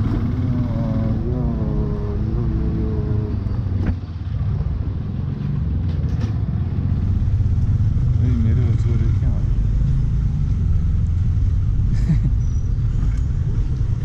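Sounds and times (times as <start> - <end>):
motorcycle engine low rumble: 0.0 - 14.0.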